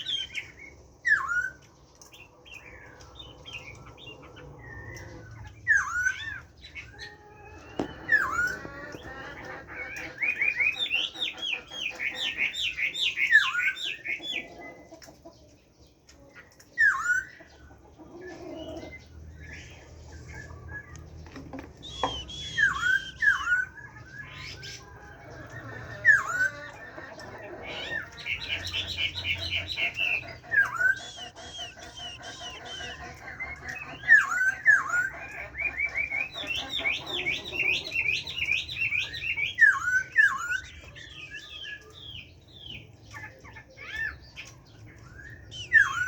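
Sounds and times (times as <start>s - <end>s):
bird singing sharp whistles: 21.9s - 23.8s.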